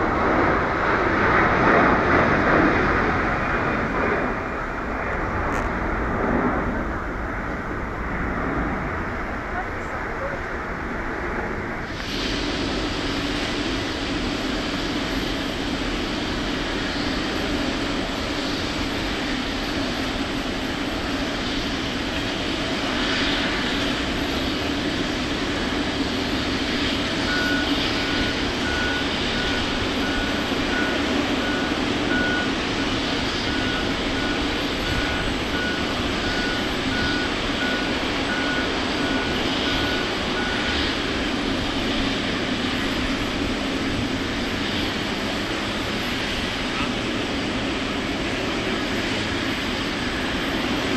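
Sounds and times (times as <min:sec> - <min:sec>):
aircraft engine drone: 0:00.0 - 0:50.9
high warning beeps: 0:26.6 - 0:43.5.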